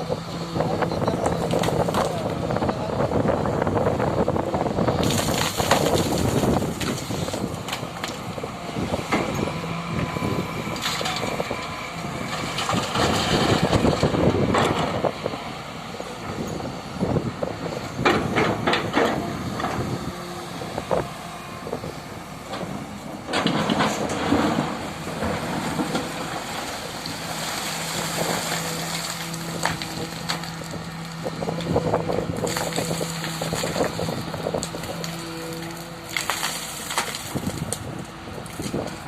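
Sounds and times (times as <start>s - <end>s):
excavator digging earth and rock: 0.0s - 39.0s
excavator engine hum: 0.0s - 39.0s
rock crunching and knocks: 5.0s - 8.2s, 23.3s - 35.2s.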